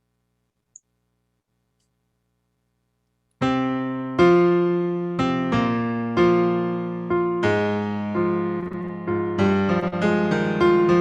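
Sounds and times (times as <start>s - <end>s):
slow piano chords: 3.4s - 11.0s.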